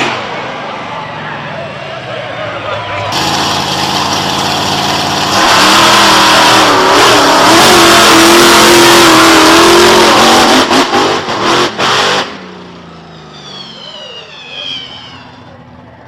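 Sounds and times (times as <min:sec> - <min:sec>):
racing engine revving: 0:02.9 - 0:12.5.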